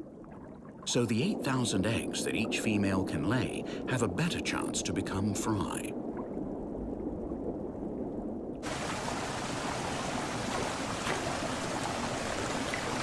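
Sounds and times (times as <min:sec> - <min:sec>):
running stream water: 0:08.6 - 0:13.0.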